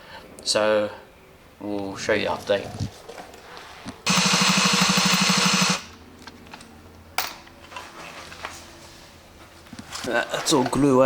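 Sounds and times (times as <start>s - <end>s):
power drill pulsing: 4.1s - 6.0s.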